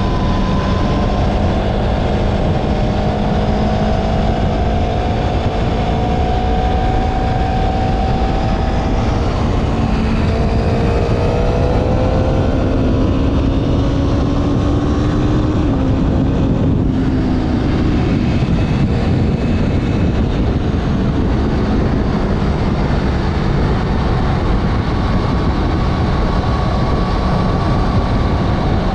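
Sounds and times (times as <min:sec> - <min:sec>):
motorcycle engine running: 0:00.0 - 0:28.9
wind rush on microphone: 0:00.0 - 0:28.9.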